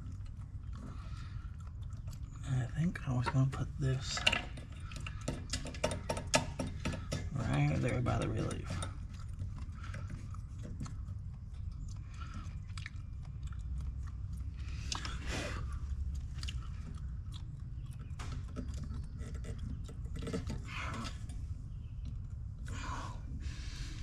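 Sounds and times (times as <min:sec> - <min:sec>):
clicks and taps on metal fittings: 0:03.2 - 0:09.0.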